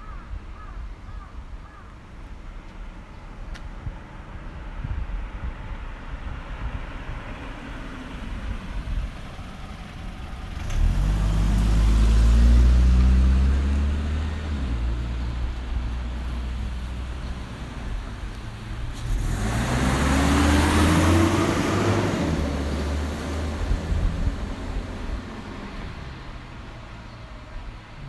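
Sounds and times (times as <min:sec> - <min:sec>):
traffic rumble: 0:00.0 - 0:28.0
car passing close by: 0:06.4 - 0:28.0.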